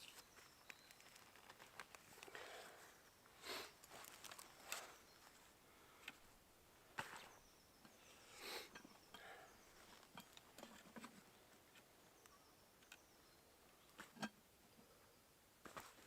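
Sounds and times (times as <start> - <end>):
faint rustles: 0.0 - 11.9.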